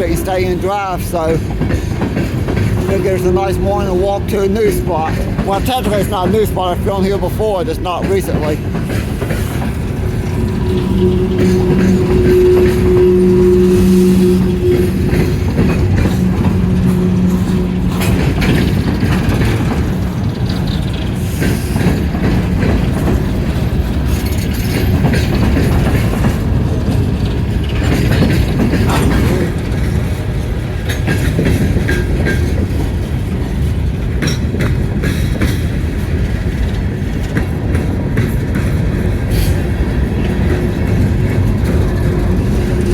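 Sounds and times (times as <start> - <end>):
train rumbling past: 0.0 - 42.9
wheels clicking over rail: 4.6 - 42.9
steady low tone: 9.6 - 20.8.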